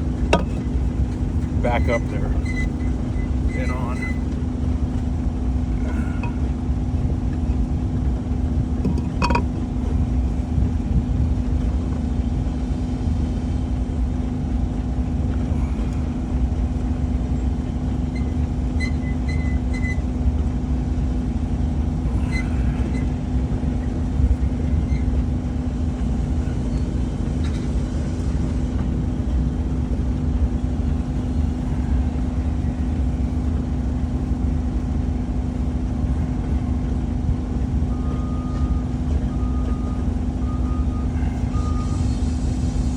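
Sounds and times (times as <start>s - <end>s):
diesel engine idling: 0.0s - 18.8s, 19.6s - 42.9s
faint metallic clinks: 8.9s - 9.5s.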